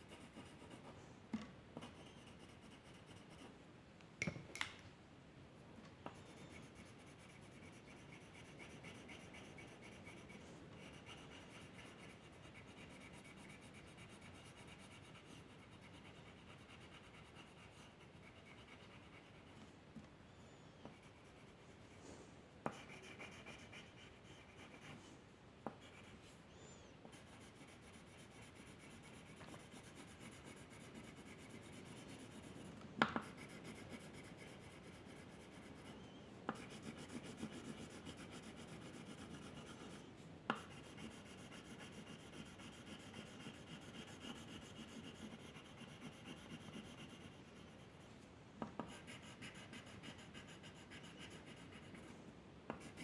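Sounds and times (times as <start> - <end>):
drawing tool scratching paper: 1.8 - 3.4, 6.2 - 19.5, 22.7 - 25.0, 27.1 - 48.0, 48.9 - 52.1.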